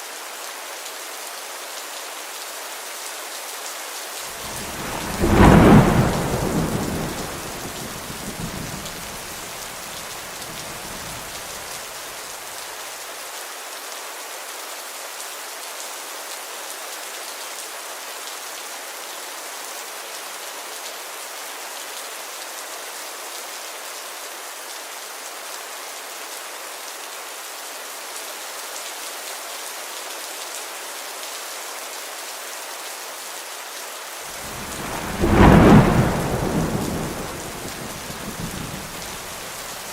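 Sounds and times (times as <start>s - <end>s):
steady rain falling: 0.0s - 39.9s
thunderclap rumbling: 4.4s - 11.7s, 34.3s - 39.9s.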